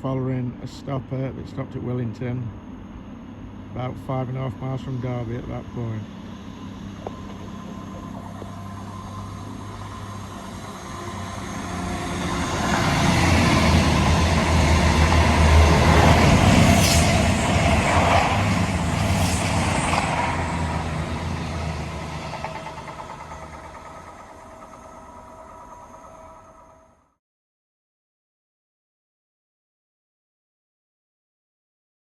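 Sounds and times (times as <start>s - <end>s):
diesel train engine hum: 0.0s - 27.2s
train wheel noise: 3.8s - 27.0s.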